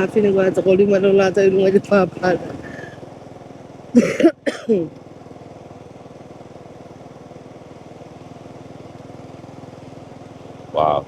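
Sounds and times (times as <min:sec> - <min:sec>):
motorbike engine cruising: 0:00.0 - 0:11.0.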